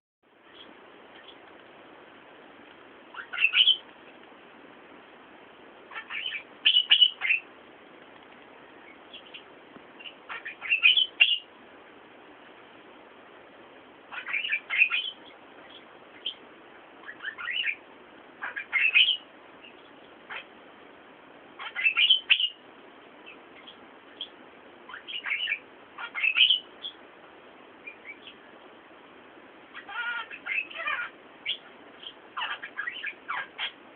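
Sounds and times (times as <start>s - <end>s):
faint steady hiss: 0.2s - 33.9s
small bird chirping: 0.4s - 1.5s, 3.1s - 4.0s, 5.9s - 7.5s, 8.6s - 11.5s, 14.1s - 20.6s, 21.5s - 22.6s, 23.2s - 27.1s, 27.8s - 28.5s, 29.6s - 33.9s.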